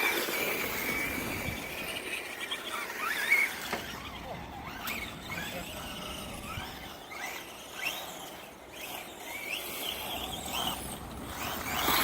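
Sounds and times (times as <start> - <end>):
rc truck motors whining: 0.0 - 12.0
wheels rolling: 0.0 - 12.0.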